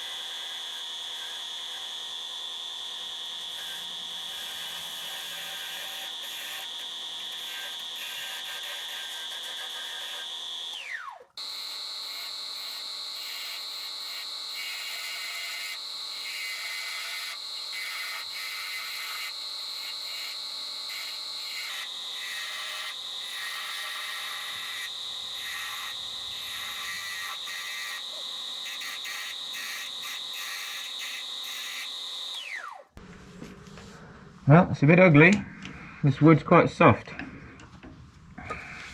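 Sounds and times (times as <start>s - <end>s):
wood lathe whine: 0.0s - 38.9s
turning tool scraping wood: 17.2s - 38.9s.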